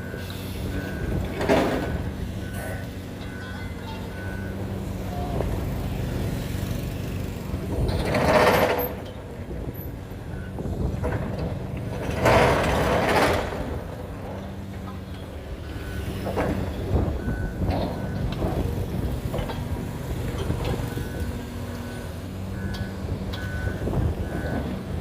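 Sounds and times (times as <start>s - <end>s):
reversing alarm beeps: 0.0s - 5.5s, 9.8s - 10.7s, 15.6s - 18.8s, 20.2s - 24.8s.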